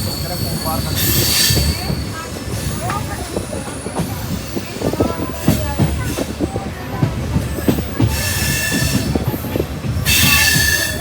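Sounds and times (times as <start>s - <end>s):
high metallic wheel squeal: 0.0s - 2.8s, 10.1s - 11.0s
train wheels clattering on rails: 0.0s - 11.0s.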